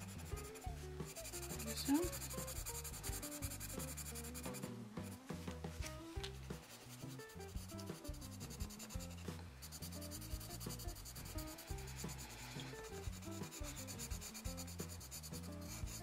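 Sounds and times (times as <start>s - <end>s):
pencil scratching on paper: 0.0s - 5.2s, 6.4s - 16.0s
background music: 0.0s - 16.0s.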